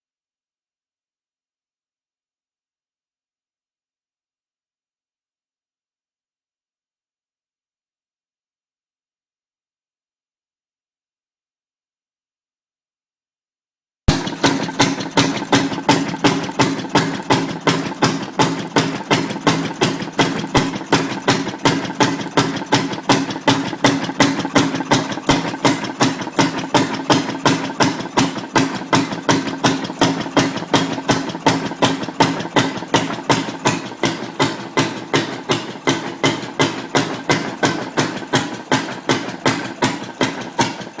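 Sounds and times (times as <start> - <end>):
engine running steadily: 14.1 - 41.0.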